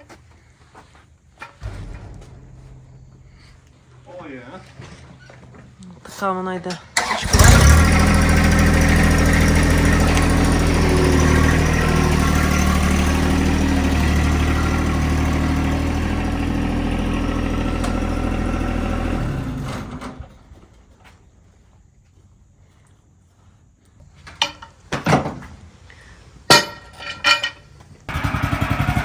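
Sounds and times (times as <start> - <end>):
engine idling: 7.0 - 20.9, 28.1 - 29.0.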